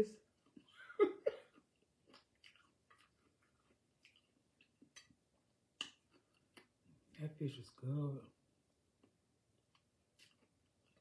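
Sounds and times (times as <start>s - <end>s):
faint chewing: 0.2s - 7.2s, 8.9s - 11.0s
wet mouth clicks and smacks: 2.1s - 5.2s, 5.8s - 6.8s.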